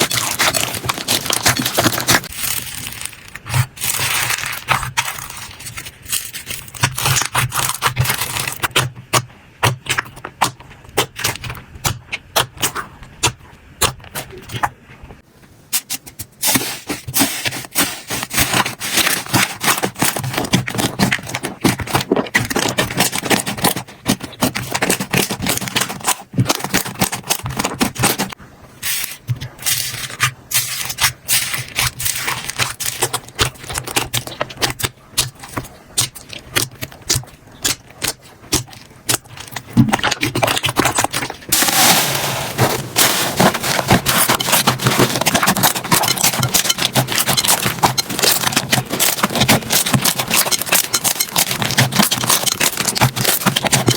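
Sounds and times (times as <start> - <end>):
slime crackling and popping: 0.0 - 8.9, 29.4 - 53.9.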